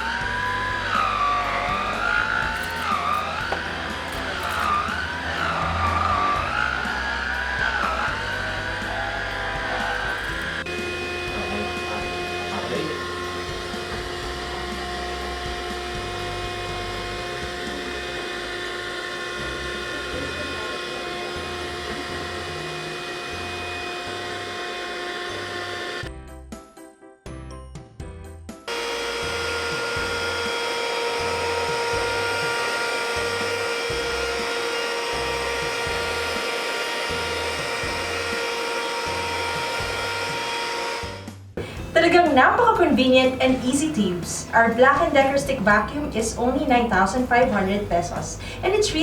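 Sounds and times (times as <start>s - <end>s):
stick vacuum motor whine: 0.0s - 26.2s, 28.7s - 49.0s.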